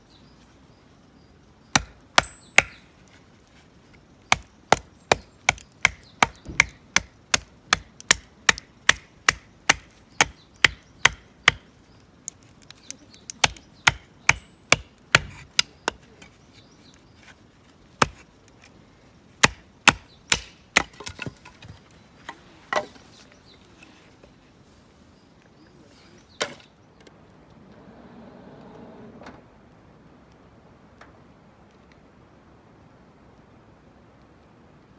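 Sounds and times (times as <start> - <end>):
firewood splitting knocks: 4.3 - 11.6, 13.3 - 16.4, 19.4 - 23.1.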